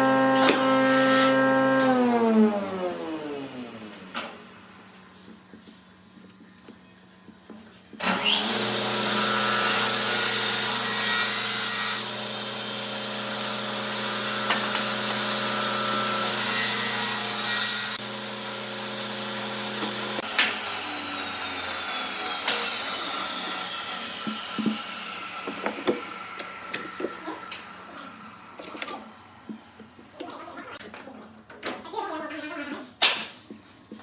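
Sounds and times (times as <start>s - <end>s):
wood lathe motor whining: 0.0s - 4.6s, 8.0s - 29.4s
tool scraping spinning wood: 0.0s - 5.2s, 21.6s - 30.8s.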